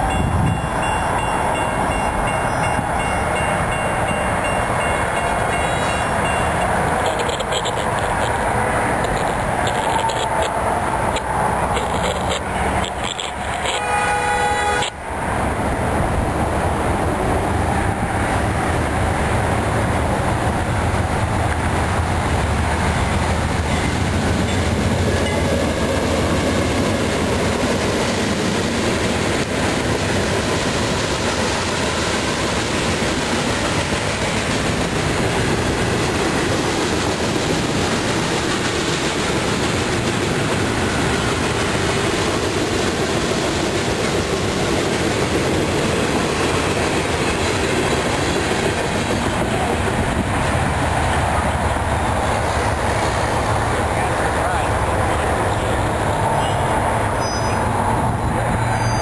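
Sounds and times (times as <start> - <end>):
locomotive engine rumble: 0.0 - 14.0, 15.8 - 59.0
train wheels rolling on rails: 0.0 - 59.0
brief horn tone: 13.6 - 14.9.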